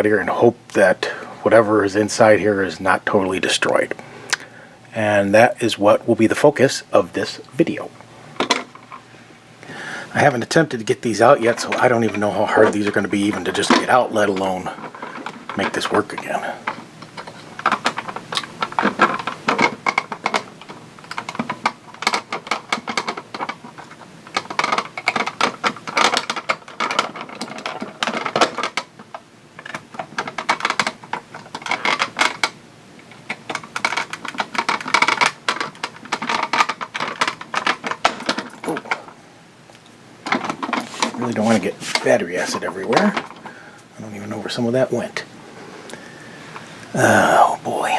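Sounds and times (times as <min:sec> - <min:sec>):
clicking and scraping plastic and metal: 0:11.4 - 0:39.2, 0:40.2 - 0:43.5.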